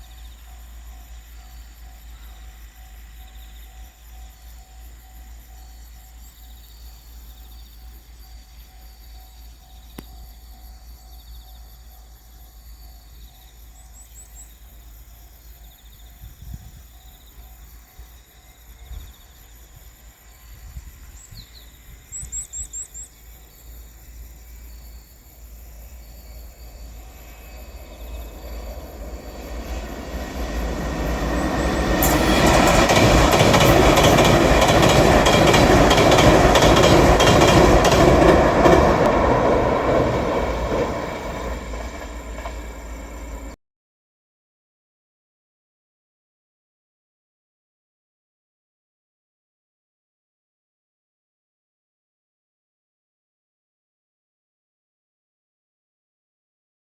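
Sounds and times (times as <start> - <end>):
electric train passing over bridge: 0.0 - 6.6, 23.2 - 43.6
wheels clicking over rails: 27.7 - 43.6.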